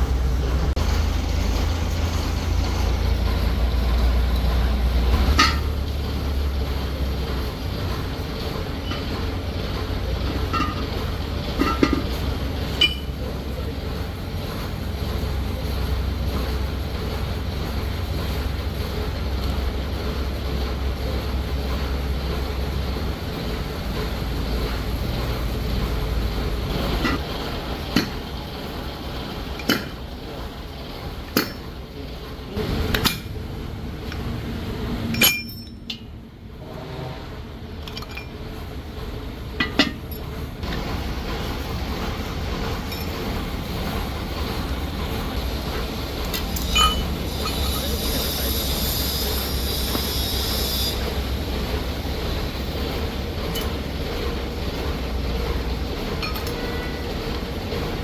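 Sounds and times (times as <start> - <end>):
metal clinks and knocks: 7.2 - 13.3, 35.1 - 36.2, 37.8 - 38.5, 39.6 - 40.8, 42.8 - 44.0, 46.2 - 48.2, 56.2 - 57.1.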